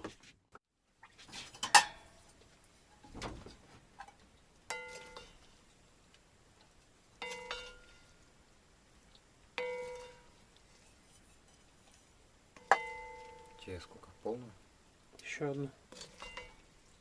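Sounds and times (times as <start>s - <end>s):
dishes and cutlery clinking: 1.3s - 2.4s, 4.0s - 5.5s, 7.2s - 8.2s, 9.6s - 11.9s, 12.6s - 13.7s, 15.9s - 16.6s.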